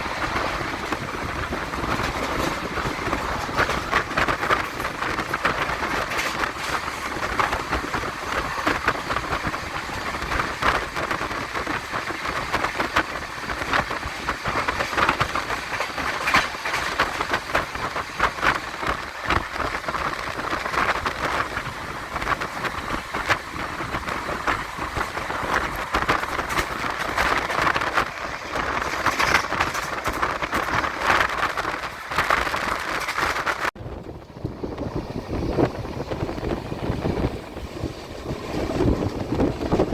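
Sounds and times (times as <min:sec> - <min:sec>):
train coaches rushing: 0:00.0 - 0:39.9
wheels clattering on rails: 0:00.0 - 0:39.9.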